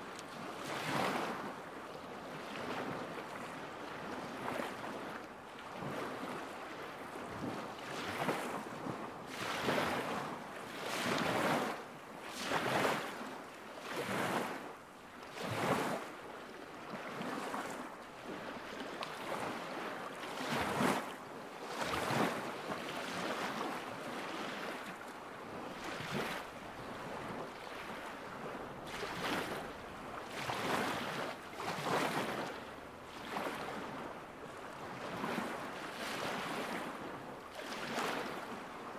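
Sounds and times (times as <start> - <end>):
small waves lapping shore: 0.0 - 38.9.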